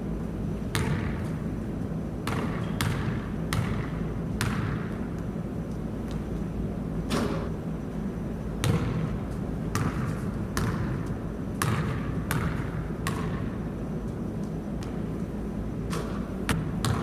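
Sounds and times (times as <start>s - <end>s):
basketball bouncing: 0.7s - 1.4s, 2.2s - 5.2s, 8.6s - 13.5s, 15.9s - 17.0s.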